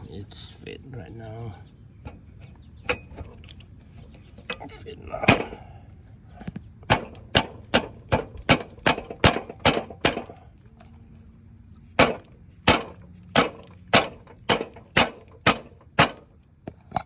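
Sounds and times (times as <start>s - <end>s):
wheel knocked onto axle: 12.0s - 17.0s.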